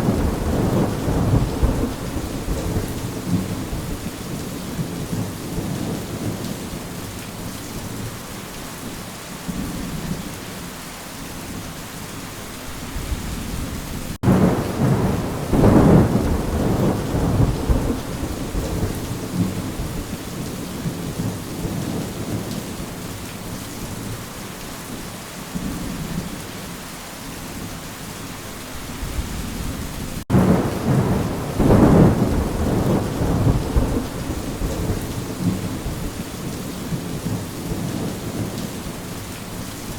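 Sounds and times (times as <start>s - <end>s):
thunder rumbling: 0.0s - 6.4s, 13.0s - 22.6s, 29.0s - 38.9s
steady rain: 0.0s - 39.9s.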